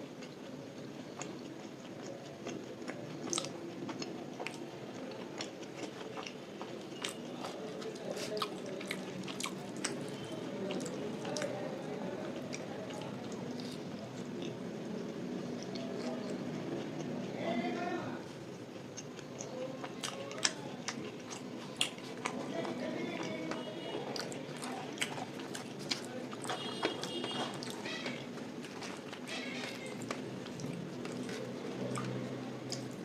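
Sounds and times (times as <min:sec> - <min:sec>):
soft food crunch: 0:00.0 - 0:33.0
wet chewing smacks: 0:00.2 - 0:10.1, 0:23.2 - 0:33.0.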